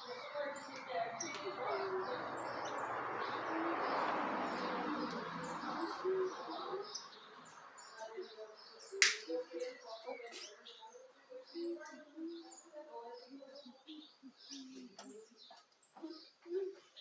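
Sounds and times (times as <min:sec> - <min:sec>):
small birds chirping: 0:00.0 - 0:17.0
sharp click: 0:09.0 - 0:09.3.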